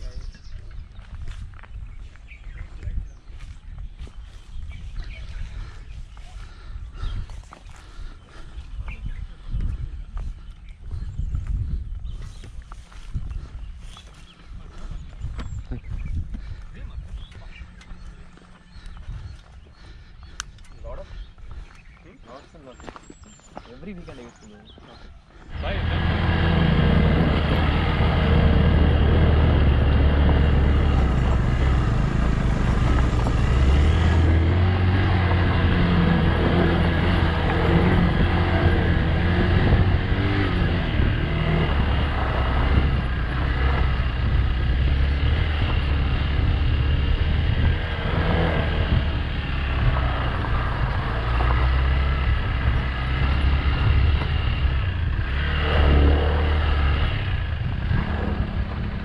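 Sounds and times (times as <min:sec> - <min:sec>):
motorcycle engine revving: 0:25.5 - 0:59.0.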